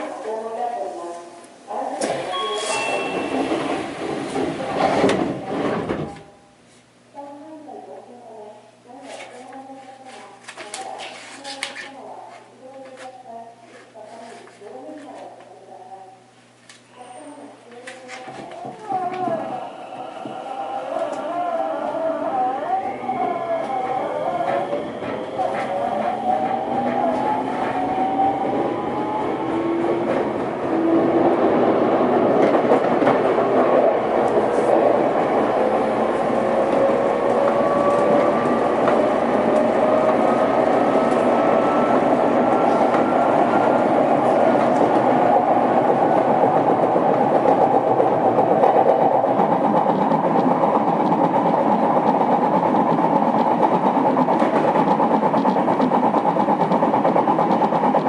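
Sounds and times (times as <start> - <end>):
train wheel and rail running noise: 0.0 - 58.0.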